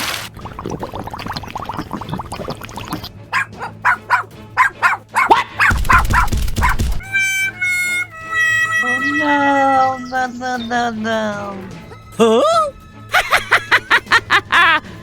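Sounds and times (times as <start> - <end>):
background music: 0.0 - 15.0
dog barking: 3.3 - 7.0.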